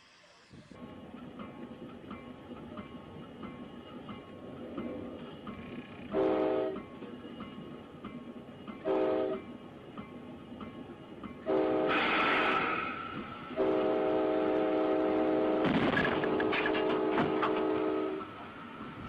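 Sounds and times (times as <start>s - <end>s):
locomotive air horn blasts: 6.1s - 6.8s, 8.8s - 9.4s, 11.4s - 12.8s, 13.5s - 18.3s.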